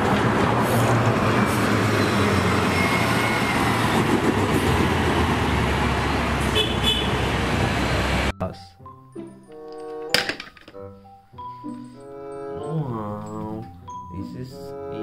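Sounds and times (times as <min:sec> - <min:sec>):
vehicle engine rumbling: 0:00.0 - 0:08.3.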